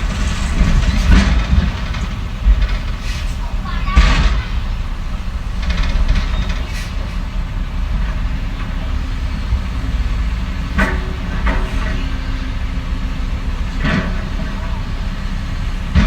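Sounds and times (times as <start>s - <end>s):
heavy machinery diesel engine running: 0.0s - 16.0s
short metallic clanks: 10.7s - 12.1s.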